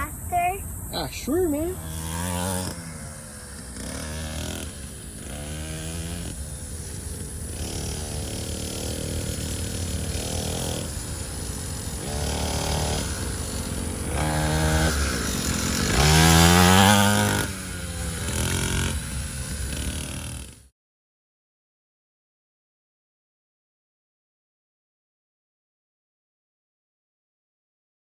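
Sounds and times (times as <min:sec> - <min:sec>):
dirt bike engine revving: 0:00.0 - 0:20.7.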